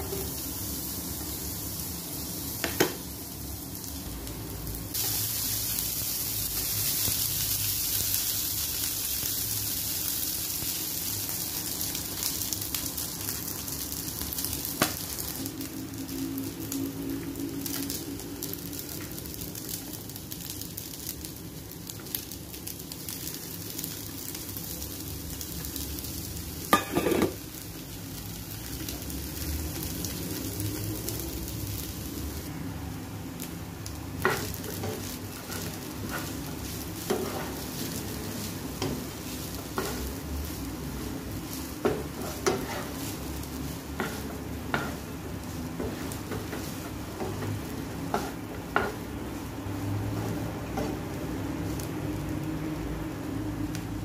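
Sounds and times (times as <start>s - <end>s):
fried rice sizzling in a pan: 0.0s - 54.0s
spatula stirring: 34.2s - 51.1s.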